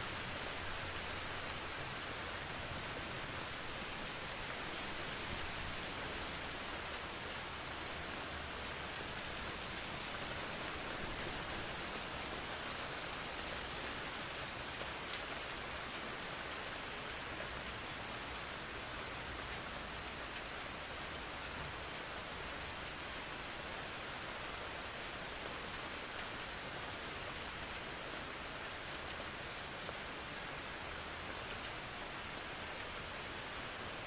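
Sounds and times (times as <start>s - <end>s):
steady rain hiss: 0.0s - 34.0s.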